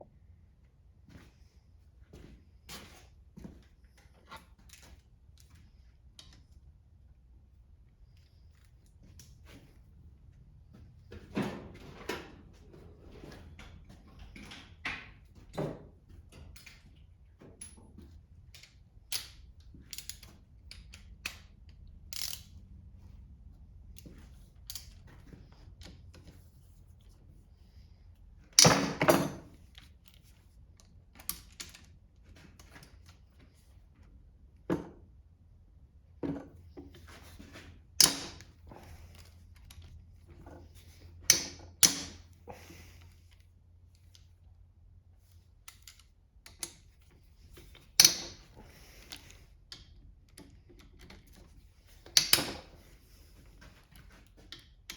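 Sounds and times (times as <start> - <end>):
hand tools clicking and clanking: 47.6 - 51.4.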